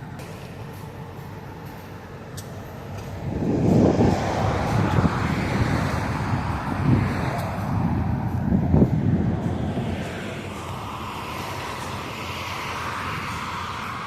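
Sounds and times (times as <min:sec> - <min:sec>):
low traffic rumble: 0:00.0 - 0:14.0
motor vehicle passing close: 0:03.0 - 0:14.0.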